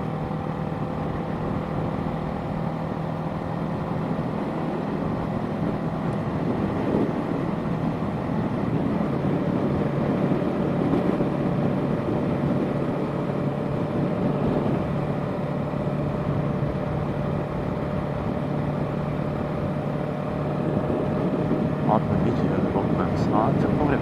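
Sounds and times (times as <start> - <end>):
wind rush on microphone: 3.5 - 22.3.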